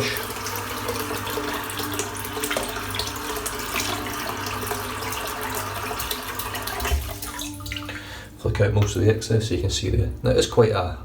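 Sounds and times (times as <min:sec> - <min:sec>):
water running from tap into sink: 0:00.0 - 0:08.0.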